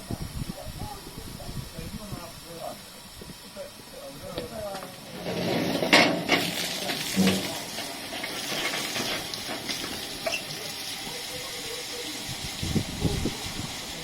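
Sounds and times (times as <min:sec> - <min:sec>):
steam hissing from locomotive: 0:00.0 - 0:14.0.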